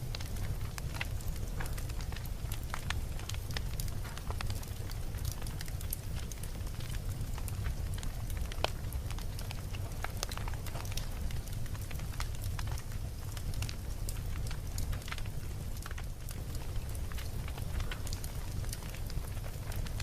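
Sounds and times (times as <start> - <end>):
campfire flames rumbling: 0.0 - 20.0
fire crackling and popping: 0.0 - 20.0.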